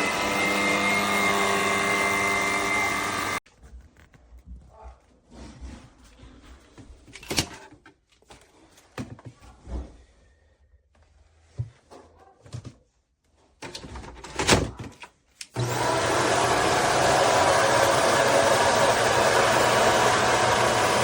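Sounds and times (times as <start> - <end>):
vacuum cleaner motor whirring: 0.0 - 3.4, 15.5 - 21.0.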